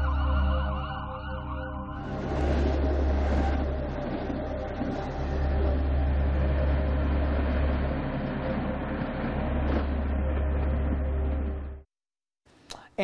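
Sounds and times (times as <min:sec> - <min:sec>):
train rumble and hiss: 0:02.0 - 0:11.7.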